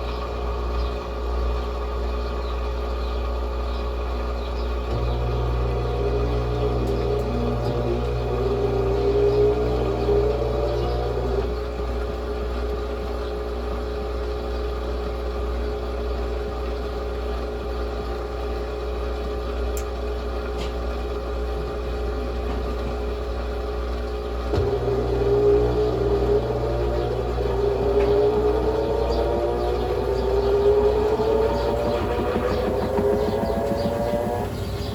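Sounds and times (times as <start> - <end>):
washing machine motor hum: 4.7 - 34.9
motor whine rising in pitch: 4.9 - 12.4, 24.5 - 34.9.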